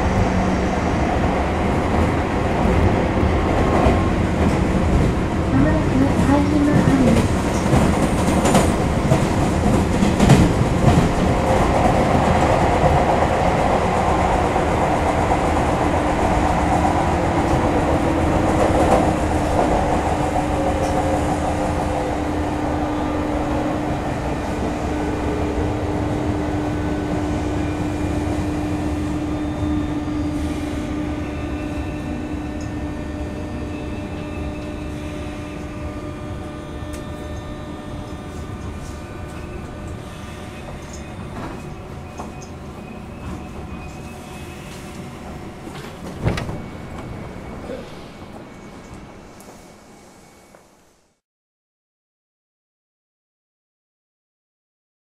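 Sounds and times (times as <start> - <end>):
electric train running whine: 0.0 - 51.2
train wheel clacks: 2.0 - 21.6.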